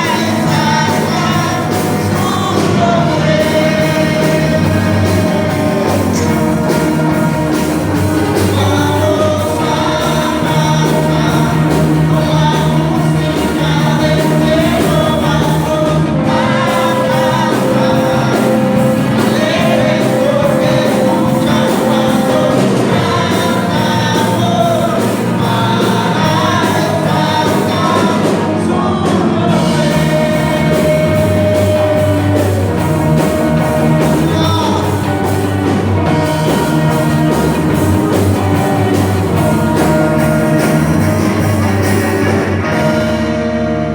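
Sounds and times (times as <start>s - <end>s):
person singing: 0.0s - 43.9s
worship band playing: 0.0s - 43.9s.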